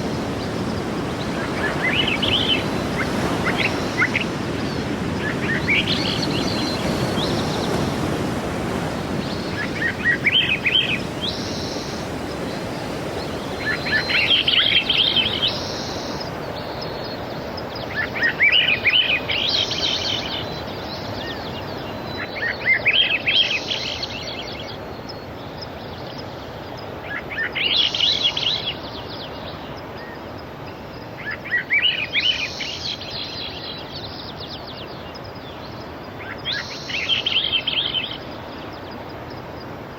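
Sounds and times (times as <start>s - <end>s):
sea surf washing in: 0.0s - 20.4s.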